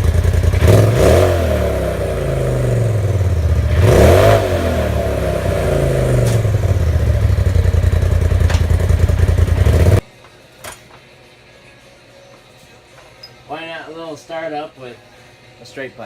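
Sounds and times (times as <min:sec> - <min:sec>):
engine revving and idling: 0:00.0 - 0:10.0.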